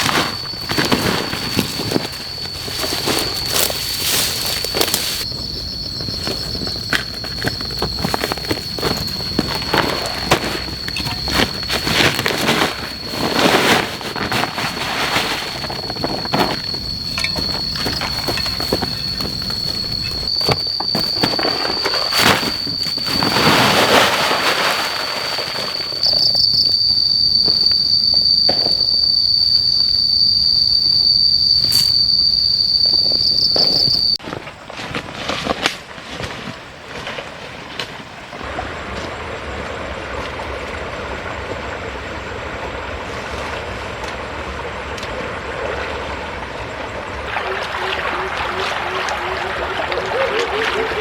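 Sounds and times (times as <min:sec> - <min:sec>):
insect trilling: 0:00.0 - 0:34.2, 0:47.1 - 0:51.0.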